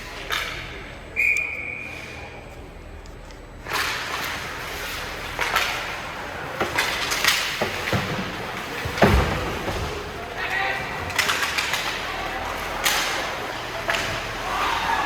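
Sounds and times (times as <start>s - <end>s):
skates scraping on ice: 3.7s - 15.0s
sticks and puck clacking: 3.7s - 15.0s
heavy thud: 7.6s - 11.2s.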